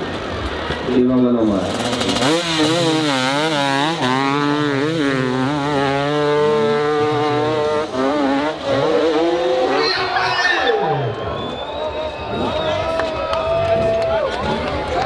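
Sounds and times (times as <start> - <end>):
dirt bike engine revving: 1.4 - 13.0.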